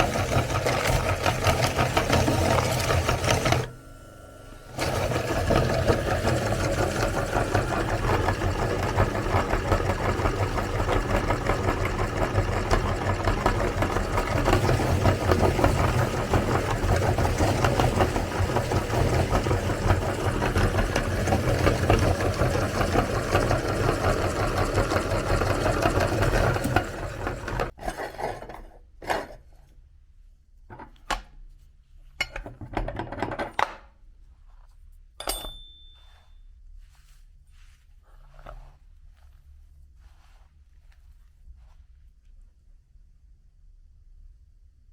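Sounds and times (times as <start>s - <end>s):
electric meat grinder running: 0.0s - 27.8s.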